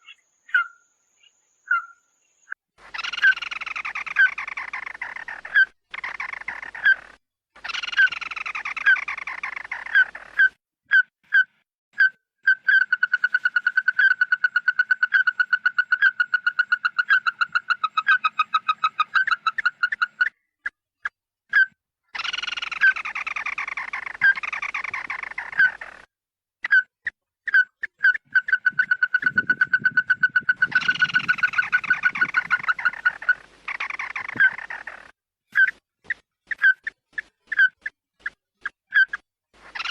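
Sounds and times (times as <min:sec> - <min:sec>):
harsh falling bird calls: 0:00.0 - 0:10.5, 0:22.2 - 0:26.1, 0:27.5 - 0:35.8, 0:38.9 - 0:39.9.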